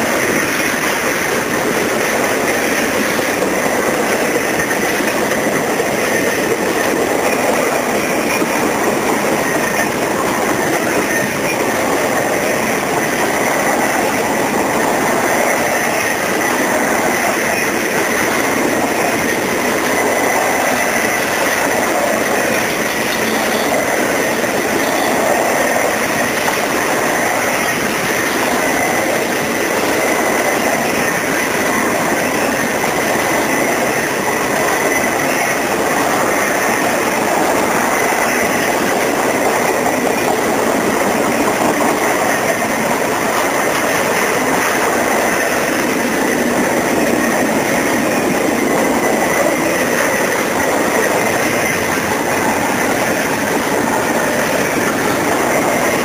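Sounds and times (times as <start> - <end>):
train wheels rolling on rails: 0.0 - 56.0
thin steady high tone: 20.0 - 26.3.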